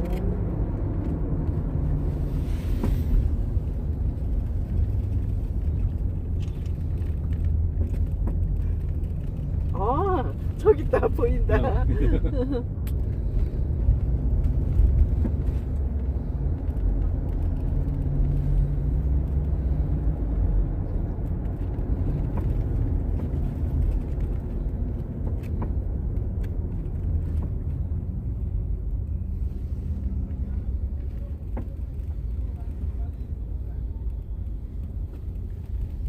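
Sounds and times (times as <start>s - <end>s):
vehicle engine and road rumble: 0.0s - 36.0s.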